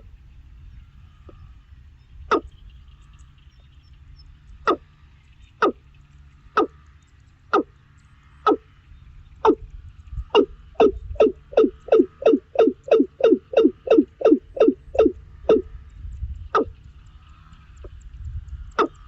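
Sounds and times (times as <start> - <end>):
low rumble of wind: 0.0 - 19.0
bird giving sharp calls: 2.3 - 2.5, 5.6 - 5.8, 8.4 - 8.7, 10.3 - 15.7, 16.5 - 16.8, 18.7 - 19.0.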